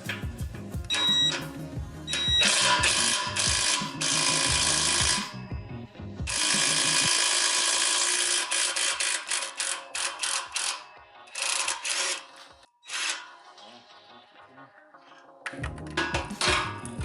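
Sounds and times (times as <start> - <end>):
power tool running in bursts: 2.3 - 5.4, 6.3 - 12.2.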